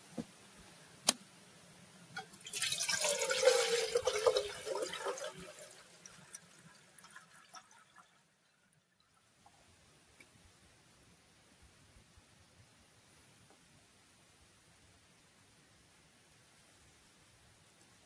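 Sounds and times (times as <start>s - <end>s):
liquid pouring: 2.2s - 8.4s.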